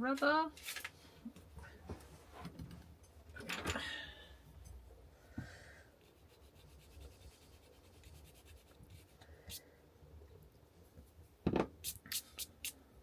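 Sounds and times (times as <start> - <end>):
rubbing and handling art materials: 5.9 - 9.7.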